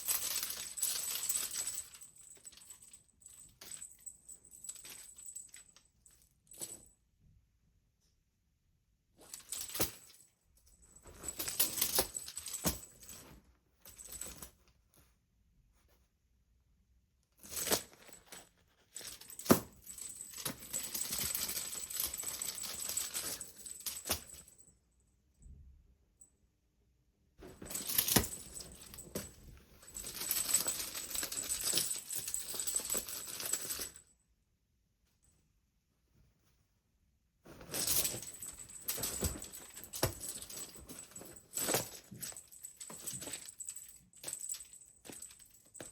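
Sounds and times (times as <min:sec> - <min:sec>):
cat toy jingling and rattling: 0:00.0 - 0:05.8, 0:10.8 - 0:14.6, 0:17.6 - 0:24.6, 0:27.4 - 0:34.0, 0:37.6 - 0:45.9.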